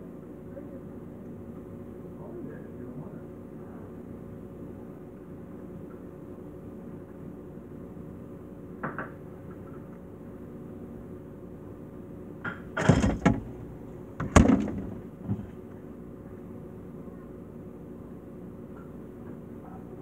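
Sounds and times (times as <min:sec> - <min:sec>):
refrigerator hum: 0:00.0 - 0:20.0
loud thuds: 0:12.7 - 0:15.6.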